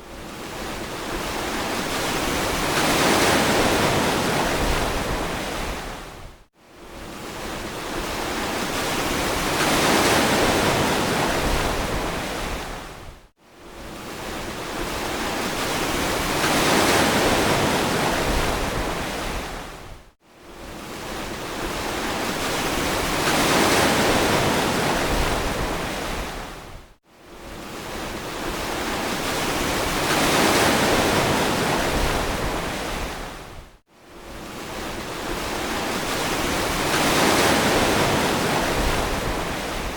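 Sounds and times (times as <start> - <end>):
ocean waves washing in: 6.9 - 39.9.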